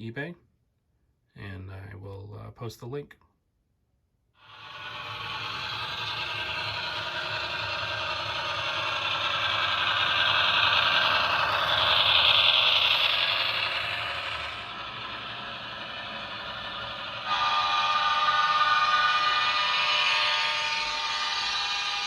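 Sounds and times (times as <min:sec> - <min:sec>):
model train running past: 0:04.4 - 0:22.0.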